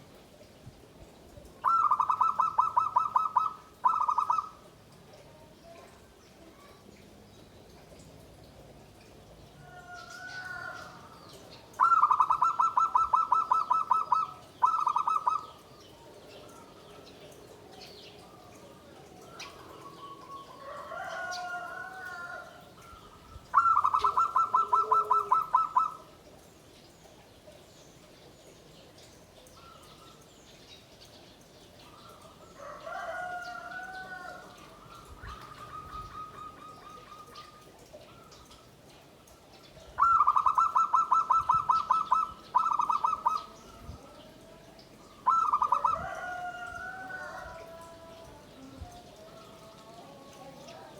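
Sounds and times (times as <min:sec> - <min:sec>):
soft wavering dove coos: 0:01.5 - 0:04.8, 0:09.6 - 0:17.1, 0:17.8 - 0:26.4, 0:31.8 - 0:38.8, 0:39.7 - 0:50.9
dove trilled cooing: 0:01.6 - 0:04.7, 0:11.7 - 0:15.8, 0:19.2 - 0:26.2, 0:31.8 - 0:38.7, 0:39.9 - 0:44.2, 0:45.1 - 0:48.2.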